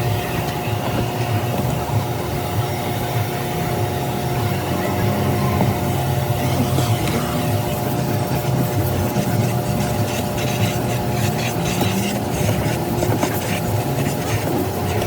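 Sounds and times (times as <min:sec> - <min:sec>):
motor droning with hiss: 0:02.2 - 0:08.9.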